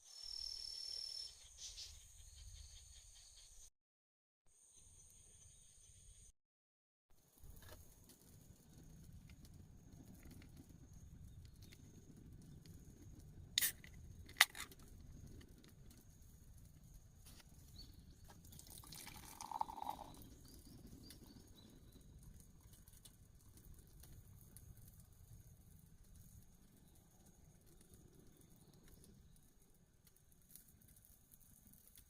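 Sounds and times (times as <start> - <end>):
faint outdoor background: 0.0 - 3.7, 4.5 - 6.3, 7.1 - 32.0
liquid being poured: 18.3 - 20.3.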